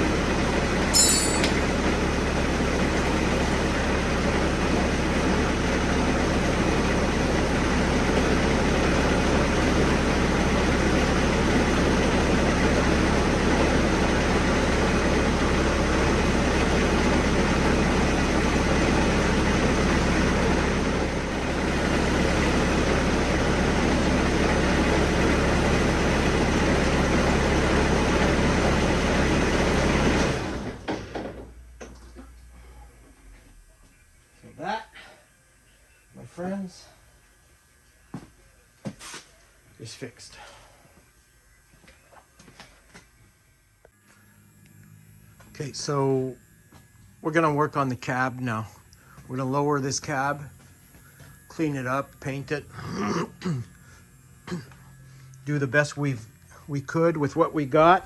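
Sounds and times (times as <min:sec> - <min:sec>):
diesel engine running: 0:00.0 - 0:33.8, 0:44.4 - 0:58.0.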